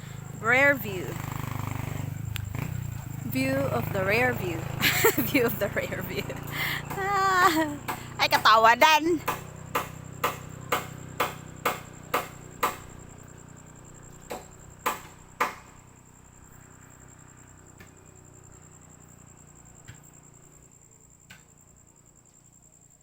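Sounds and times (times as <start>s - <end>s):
hand tool striking wood: 6.8s - 8.6s, 9.2s - 13.0s, 14.3s - 15.8s.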